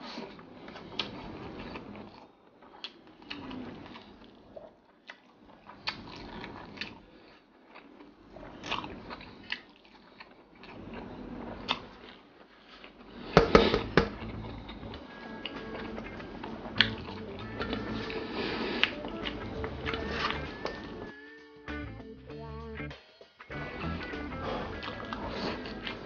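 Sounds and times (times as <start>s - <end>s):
chewing and wet mouth noises: 0.0s - 21.2s, 24.1s - 26.0s
mouth smacks and clicks: 13.4s - 21.0s.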